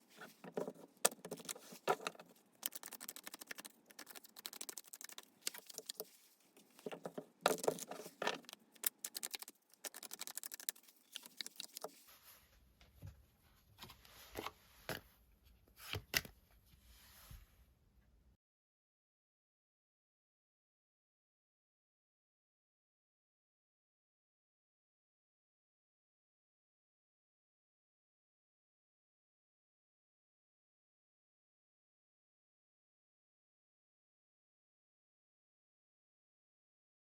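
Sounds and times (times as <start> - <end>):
cards shuffling: 0.1 - 12.0.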